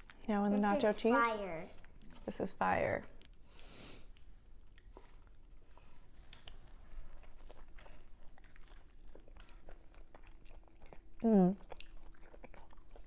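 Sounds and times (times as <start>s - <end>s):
person chewing food: 3.2s - 13.0s.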